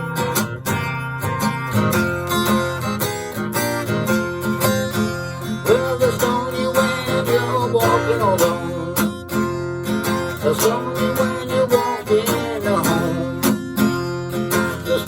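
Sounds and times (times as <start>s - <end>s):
acoustic guitar strumming blues: 0.0s - 15.0s.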